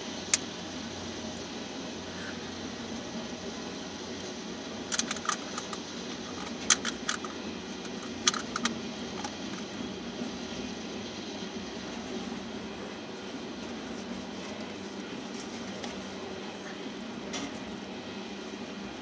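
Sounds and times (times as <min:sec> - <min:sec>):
train wheels rumbling on rail: 0:00.0 - 0:19.0
metallic wheel clicks: 0:04.9 - 0:09.3.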